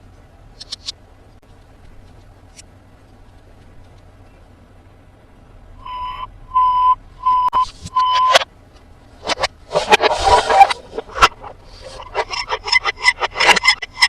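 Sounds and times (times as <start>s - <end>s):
electronic toy beeps: 5.8s - 8.4s.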